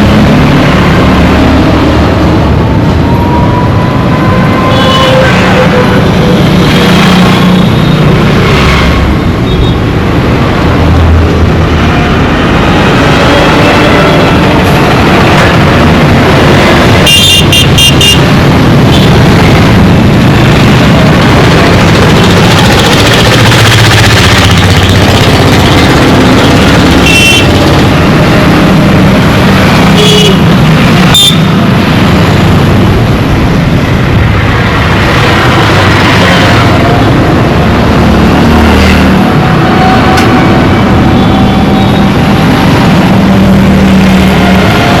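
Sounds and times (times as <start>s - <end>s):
motorcycle and car engines: 0.0s - 45.0s
horn toots: 17.0s - 19.1s, 26.7s - 27.8s, 29.9s - 31.5s.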